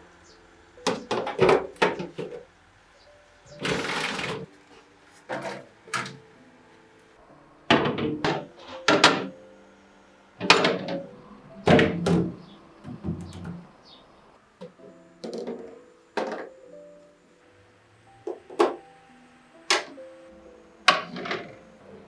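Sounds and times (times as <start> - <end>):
kitchen items knocking and thumping: 0.9 - 2.5, 3.5 - 4.5, 5.3 - 6.2, 7.7 - 9.3, 10.4 - 11.1, 11.7 - 13.7, 14.6 - 16.6, 18.3 - 18.8, 20.9 - 21.6.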